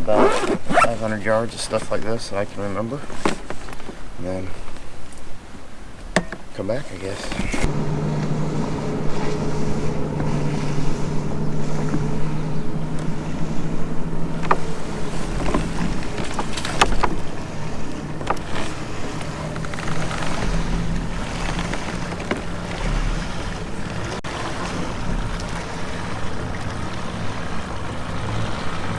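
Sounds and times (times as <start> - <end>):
wind: 0.0 - 28.9
water lapping: 7.0 - 28.9
steady low hum: 7.5 - 24.2.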